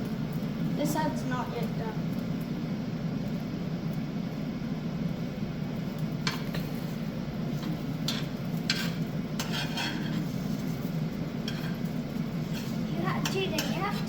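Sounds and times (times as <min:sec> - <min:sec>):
steady low hum: 0:00.0 - 0:14.0
utensil scraping frying pan: 0:06.2 - 0:14.0.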